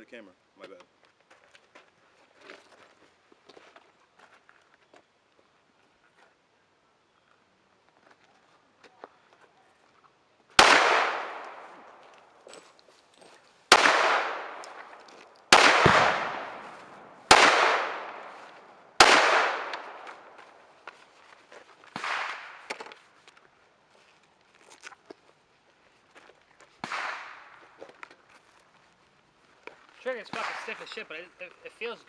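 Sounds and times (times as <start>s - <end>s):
gunshots with echo: 10.6s - 11.9s, 13.7s - 20.4s, 22.0s - 22.6s.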